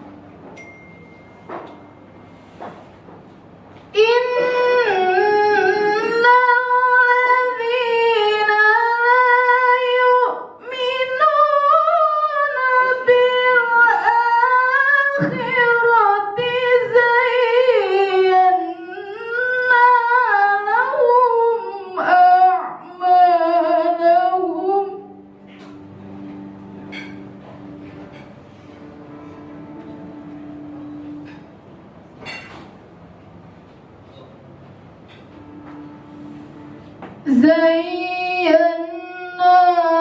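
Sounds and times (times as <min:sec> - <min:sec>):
woman reciting melodically: 0:03.9 - 0:25.4, 0:37.2 - 0:40.0.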